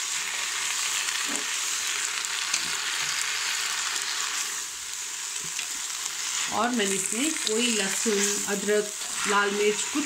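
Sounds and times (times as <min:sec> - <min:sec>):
greens frying in hot oil: 0:00.0 - 0:10.0.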